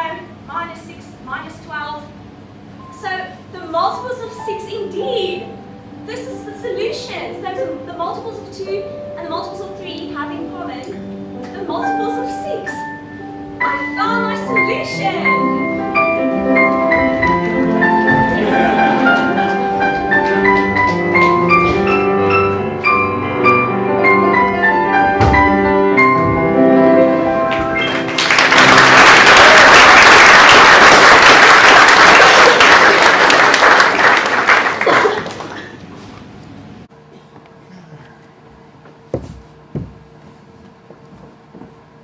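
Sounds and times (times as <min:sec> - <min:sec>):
instrumental music bright melody: 0:02.8 - 0:29.3
loud audience applause: 0:27.5 - 0:35.8.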